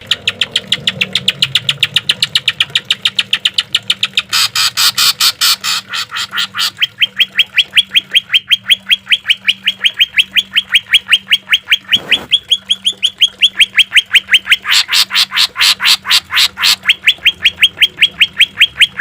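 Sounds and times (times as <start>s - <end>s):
bird singing rapid rising notes: 6.2s - 15.4s.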